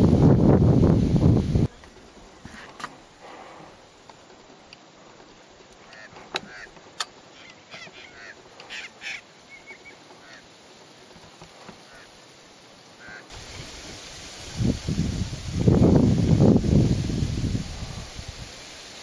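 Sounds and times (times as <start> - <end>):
birds calling: 1.6 - 14.1
sharp clicks: 5.7 - 7.9.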